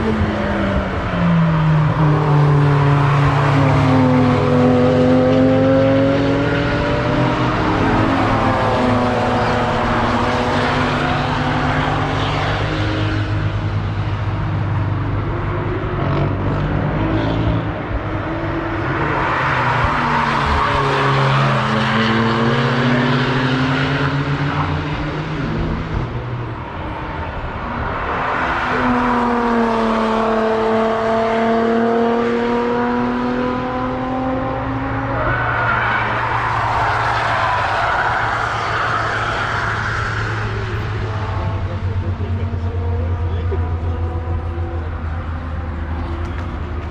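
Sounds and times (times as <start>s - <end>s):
car approaching: 0.0s - 46.9s
car engine passing: 15.4s - 46.9s.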